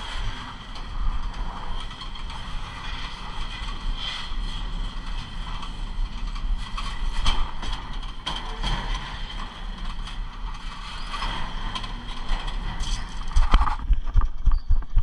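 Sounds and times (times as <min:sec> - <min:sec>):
train low rumble: 0:00.0 - 0:15.0.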